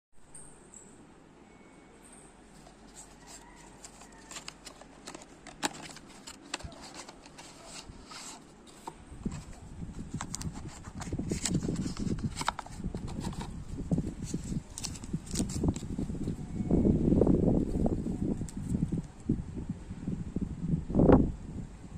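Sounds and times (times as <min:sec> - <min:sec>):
packaging rustling: 0:02.6 - 0:16.4.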